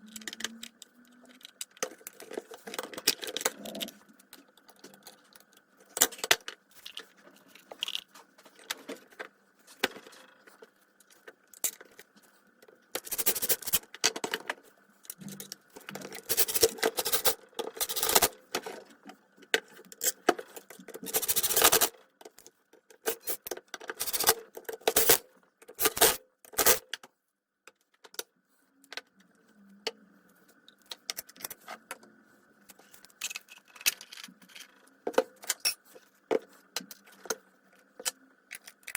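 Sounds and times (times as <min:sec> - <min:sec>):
metal parts clicking and clinking: 0:00.0 - 0:12.0, 0:12.9 - 0:18.9, 0:19.6 - 0:27.0, 0:32.8 - 0:36.0, 0:38.0 - 0:38.9
faint steady hum: 0:00.0 - 0:38.9.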